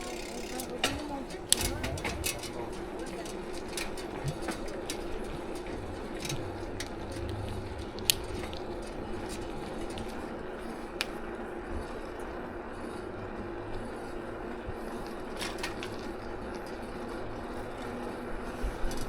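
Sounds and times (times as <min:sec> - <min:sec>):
low hum: 0:00.9 - 0:17.8.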